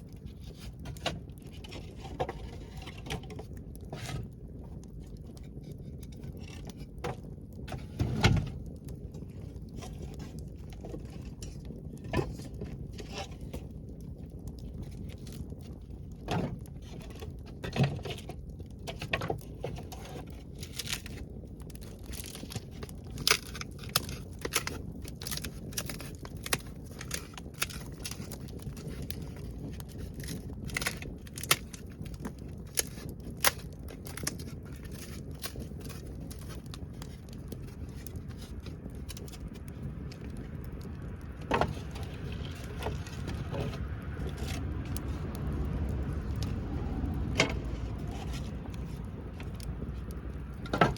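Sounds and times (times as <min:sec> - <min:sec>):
campfire crackling and popping: 0:00.0 - 0:50.9
low rumble: 0:21.0 - 0:50.9.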